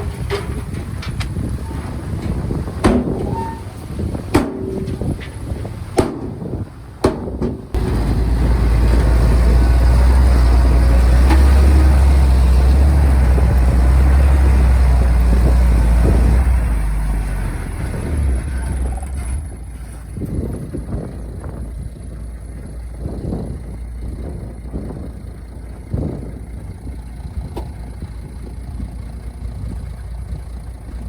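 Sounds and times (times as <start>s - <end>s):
heavy diesel machinery rumbling: 0.0s - 31.0s.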